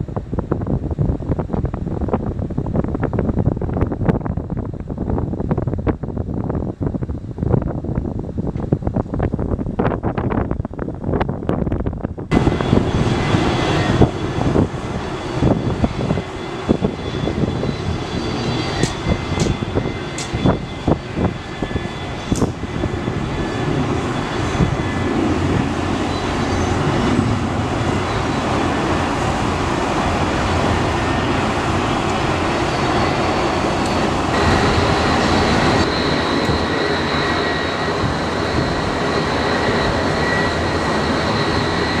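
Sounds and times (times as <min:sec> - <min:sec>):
jet engines roaring: 0:00.0 - 0:42.0
wind buffeting microphone: 0:00.0 - 0:42.0
faint high whine: 0:12.4 - 0:42.0.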